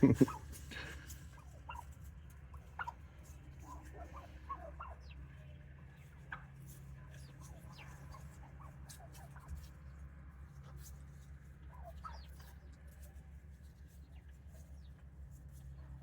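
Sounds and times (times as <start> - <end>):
turkeys clucking: 0.0 - 9.7, 11.7 - 13.1.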